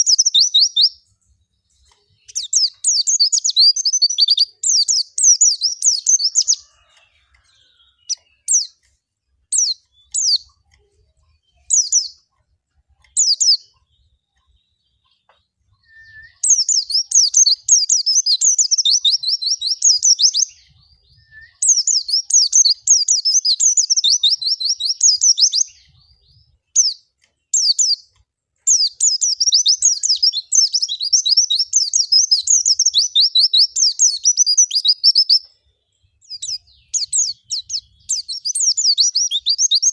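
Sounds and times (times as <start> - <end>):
bird singing rapid warble: 0.0 - 39.9.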